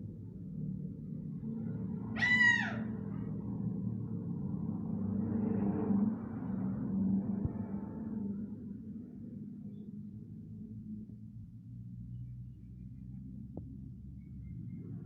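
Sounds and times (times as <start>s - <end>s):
parrot call bending down in pitch: 2.2s - 2.9s.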